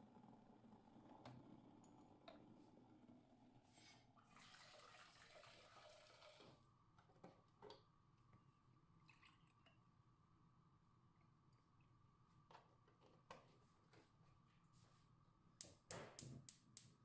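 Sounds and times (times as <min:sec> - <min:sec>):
faint running water: 0:04.2 - 0:06.6, 0:09.0 - 0:09.9.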